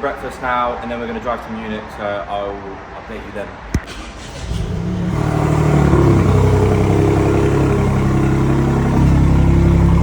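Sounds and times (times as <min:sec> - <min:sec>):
car engine revving: 0:03.9 - 0:10.0.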